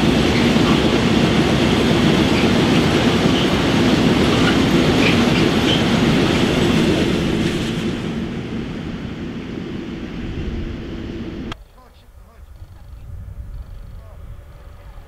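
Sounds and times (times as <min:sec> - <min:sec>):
train wheels rumbling and clattering: 0:00.0 - 0:11.6
wheel squeals: 0:04.3 - 0:06.0.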